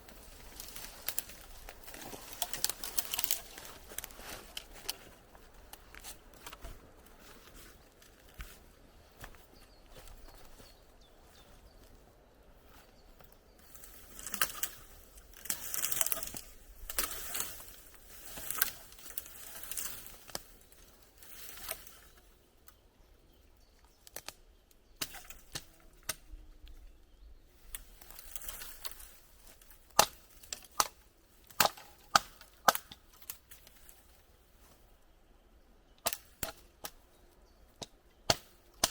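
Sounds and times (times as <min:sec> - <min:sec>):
branches snapping: 0:00.0 - 0:08.6, 0:13.2 - 0:22.3, 0:24.0 - 0:24.4, 0:25.0 - 0:26.3, 0:27.6 - 0:34.8, 0:36.0 - 0:37.0, 0:37.8 - 0:38.9
branches rustling and crackling: 0:00.0 - 0:38.9.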